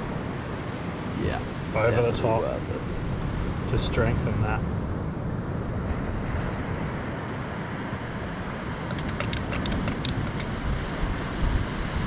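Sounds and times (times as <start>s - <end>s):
wind buffeting microphone: 0.0s - 12.0s
small sharp ticks: 8.8s - 10.5s.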